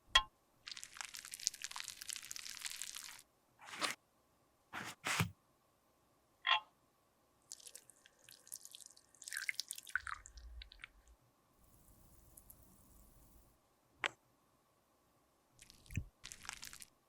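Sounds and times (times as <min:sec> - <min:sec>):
fine crackling and scraping: 0:03.6 - 0:04.0, 0:04.8 - 0:05.3.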